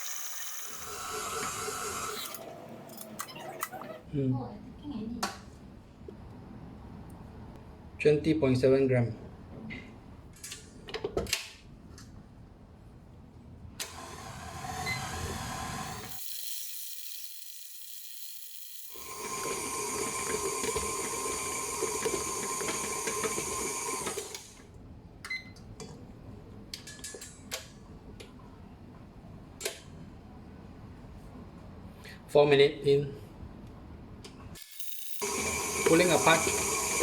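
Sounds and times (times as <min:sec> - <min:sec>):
electric mixer motor running: 0:00.0 - 0:02.4, 0:15.2 - 0:24.3, 0:34.6 - 0:37.0.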